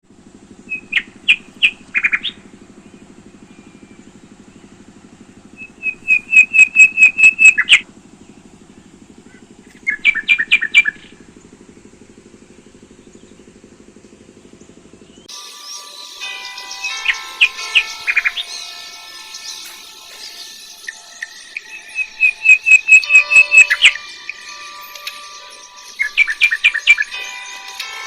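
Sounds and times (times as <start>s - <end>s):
steady low hum: 0.0s - 15.3s, 16.2s - 28.0s
shrikes calling sharp notes: 0.7s - 7.8s, 15.2s - 28.0s.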